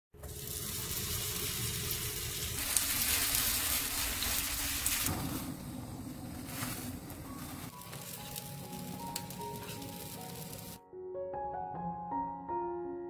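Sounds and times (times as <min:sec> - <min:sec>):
batter sizzling in hot oil: 0:00.2 - 0:05.7, 0:06.5 - 0:10.8.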